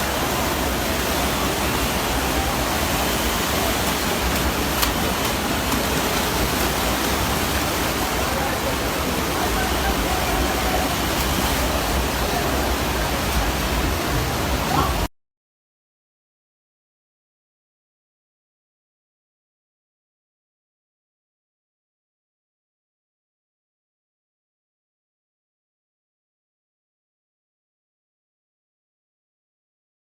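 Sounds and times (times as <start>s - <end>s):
faint voices: 0.0s - 15.1s
floodwater rushing: 0.0s - 15.1s.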